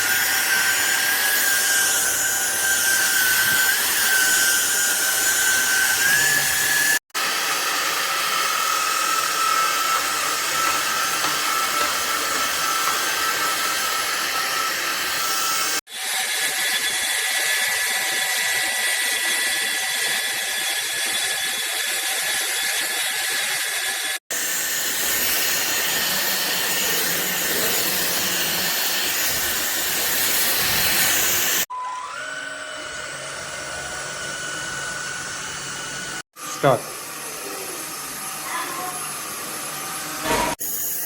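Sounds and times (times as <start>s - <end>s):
stick vacuum running: 5.4s - 15.2s.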